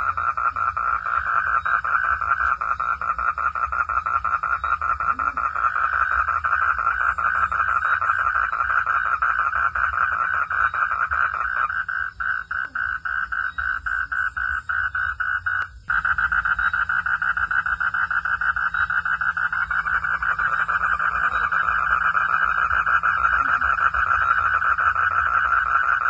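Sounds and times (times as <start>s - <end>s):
frogs calling in chorus: 0.0s - 26.0s.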